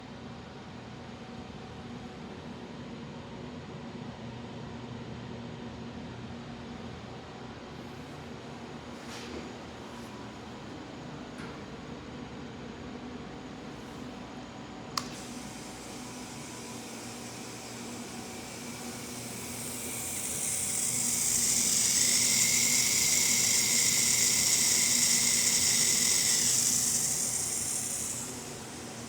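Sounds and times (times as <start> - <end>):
air hissing through vacuum leak: 15.0 - 29.0.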